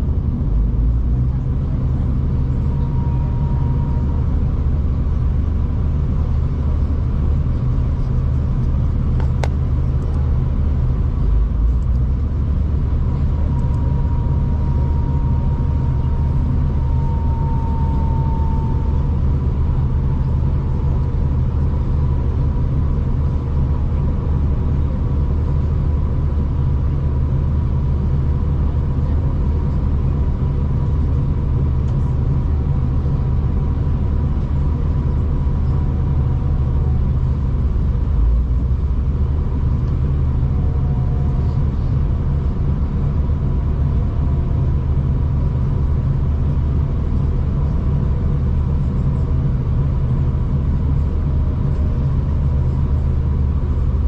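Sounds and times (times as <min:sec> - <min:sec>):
train running low rumble: 0:00.0 - 0:54.0
faint high tone: 0:02.5 - 0:04.5, 0:13.5 - 0:19.3.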